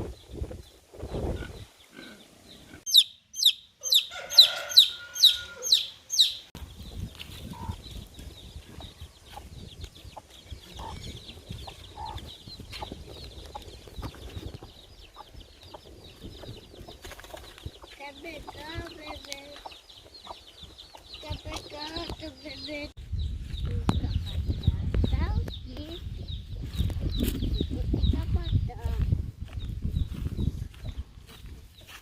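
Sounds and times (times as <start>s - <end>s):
chicks peeping: 0.0s - 32.0s
chickens clucking: 3.8s - 22.9s.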